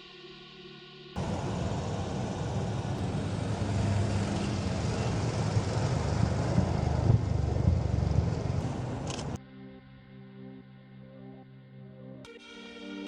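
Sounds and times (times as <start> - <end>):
engine low rumble: 1.2 - 9.4.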